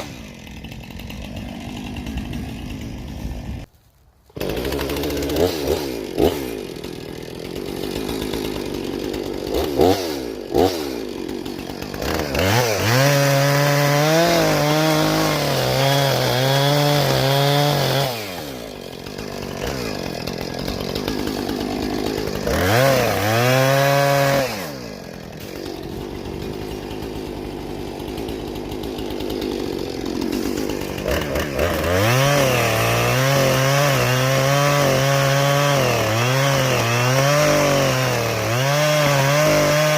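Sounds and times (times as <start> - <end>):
chainsaw cutting tree trunk: 0.0 - 39.9.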